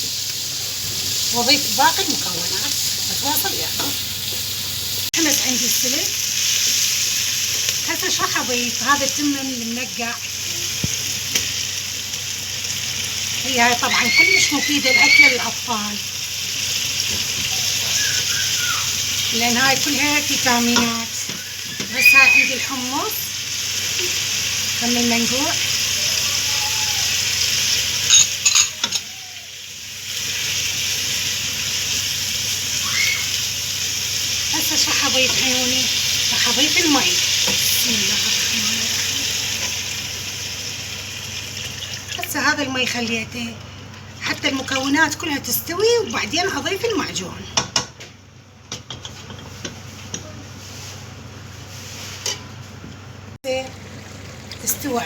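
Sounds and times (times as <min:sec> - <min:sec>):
vegetables sizzling in oil: 0:00.0 - 0:47.3, 0:49.0 - 0:52.6, 0:53.5 - 0:55.0
kitchen hum: 0:00.0 - 0:55.0
sharp clinks and knocks: 0:28.1 - 0:29.0.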